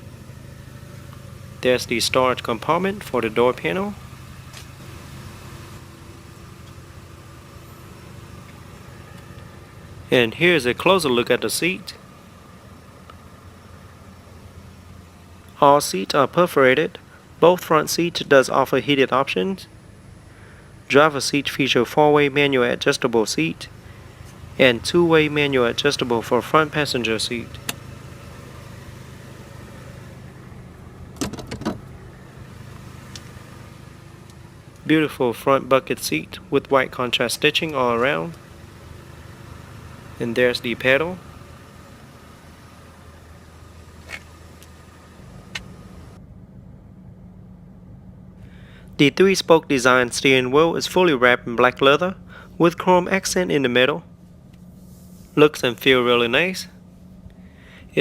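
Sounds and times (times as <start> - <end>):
vehicle engine idling: 0.0 - 58.0
low hum: 17.0 - 58.0
sharp clicks and knocks: 31.2 - 31.8.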